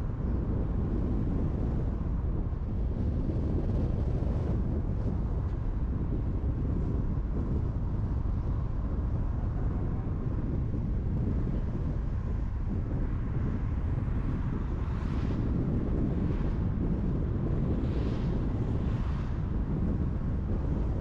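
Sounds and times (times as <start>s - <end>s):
tyres rumbling on road: 0.0s - 21.0s
wind noise: 0.0s - 21.0s.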